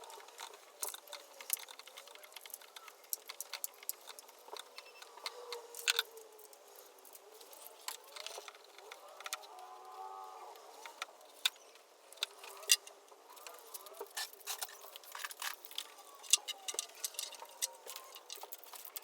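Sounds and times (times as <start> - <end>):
light clicks and clinks: 10.8 - 19.0.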